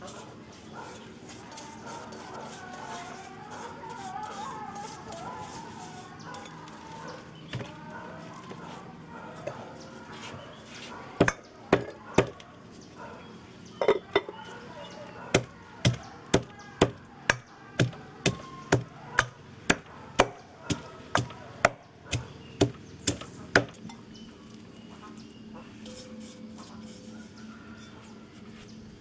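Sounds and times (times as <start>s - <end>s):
blade chopping on hard surface: 15.4s - 23.8s.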